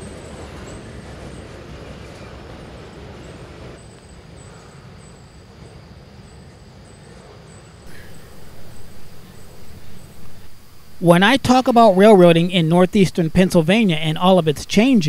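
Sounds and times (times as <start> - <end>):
freight train wheels rumbling: 0.0 - 3.8, 7.9 - 15.0.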